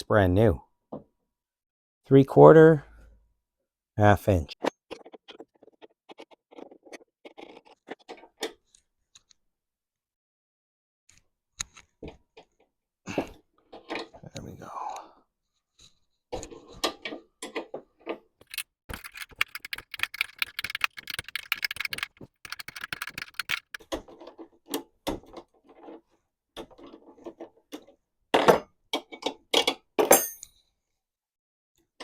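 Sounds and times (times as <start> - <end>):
metal clicks: 18.4 - 23.8
rapid ratchet clicking: 18.4 - 23.8.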